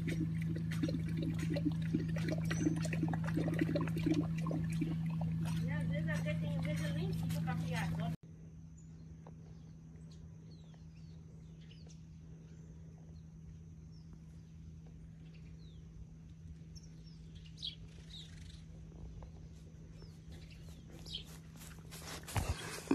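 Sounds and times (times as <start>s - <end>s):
birds chirping: 0.0s - 8.2s, 16.7s - 22.9s
steady low hum: 0.0s - 22.9s.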